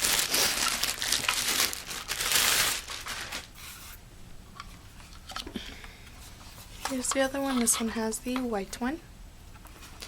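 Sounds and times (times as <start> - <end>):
plastic packaging crinkling: 0.0 - 3.6.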